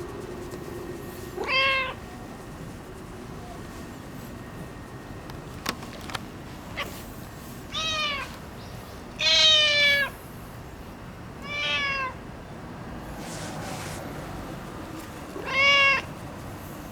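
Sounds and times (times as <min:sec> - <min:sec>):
cat meowing: 0:01.4 - 0:02.0, 0:07.7 - 0:08.3, 0:09.2 - 0:10.2, 0:11.4 - 0:12.2, 0:15.4 - 0:16.1.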